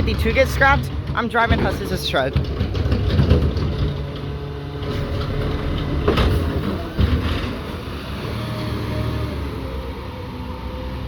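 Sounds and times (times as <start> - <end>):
garbage truck engine droning: 0.0 - 11.0.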